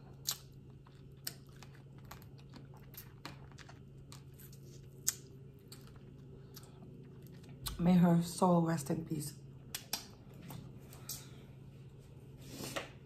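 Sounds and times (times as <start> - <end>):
soft chewing: 0.0 - 7.8
faint low hum: 0.0 - 13.0.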